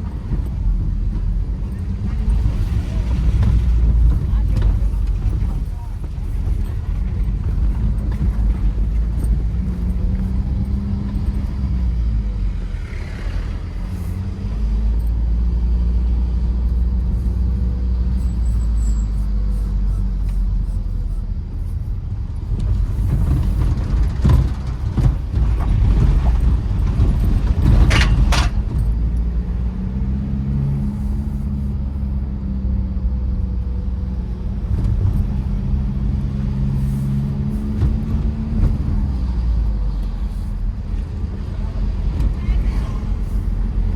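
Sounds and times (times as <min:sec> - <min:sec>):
diesel engine running: 0:00.0 - 0:43.9
low road rumble: 0:00.0 - 0:43.9
knocks and rattles: 0:22.2 - 0:29.2.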